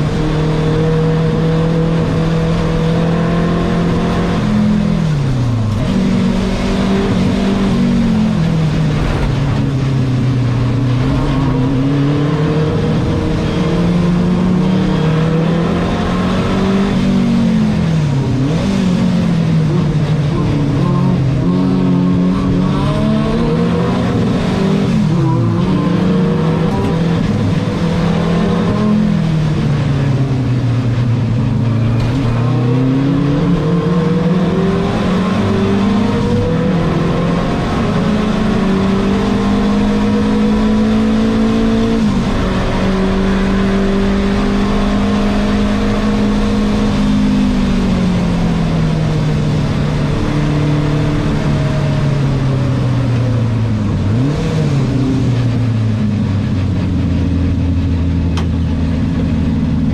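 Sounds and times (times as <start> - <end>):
car engine revving through gear changes: 0.0 - 59.9.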